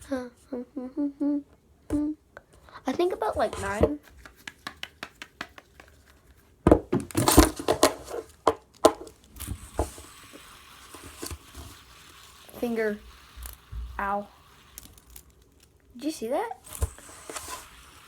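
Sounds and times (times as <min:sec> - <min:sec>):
small hard toys clicking and clattering: 0:07.0 - 0:18.0.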